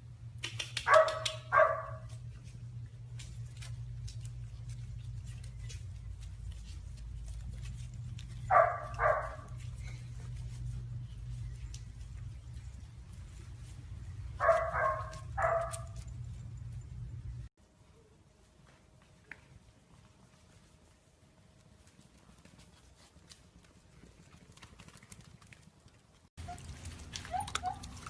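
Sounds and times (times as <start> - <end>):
low steady hum: 0.0 - 24.4
dog barking: 0.8 - 2.1, 8.5 - 9.6, 14.4 - 16.0.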